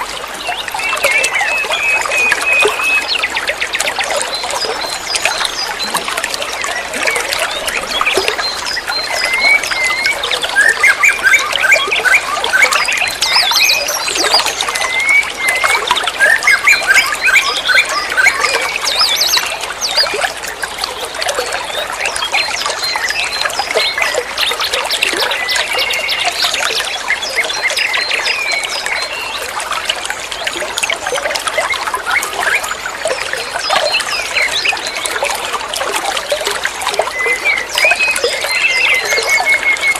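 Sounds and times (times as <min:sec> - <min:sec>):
water trickling and flowing: 0:00.0 - 0:39.9.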